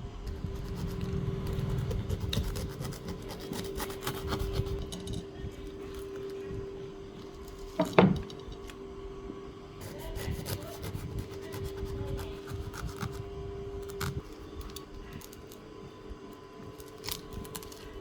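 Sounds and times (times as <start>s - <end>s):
knife scraping through husk: 0.2s - 5.2s, 9.8s - 15.4s.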